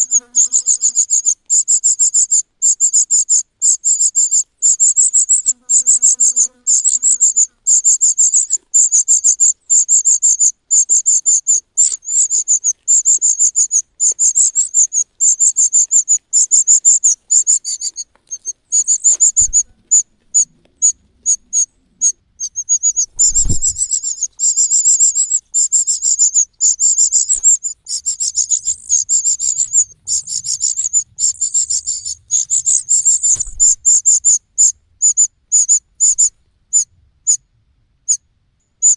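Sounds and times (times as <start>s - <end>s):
cuckoo chick begging calls: 0.0s - 37.4s
low thumps: 23.1s - 24.2s.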